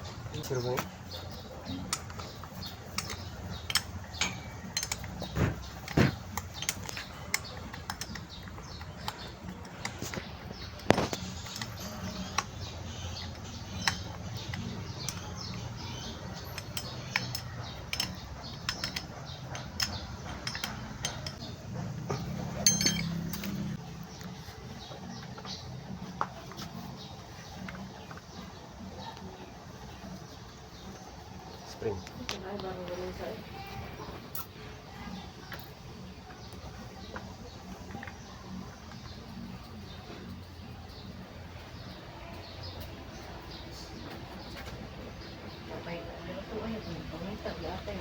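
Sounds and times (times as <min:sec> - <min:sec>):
metal tools clinking and knocking: 0:00.2 - 0:23.8.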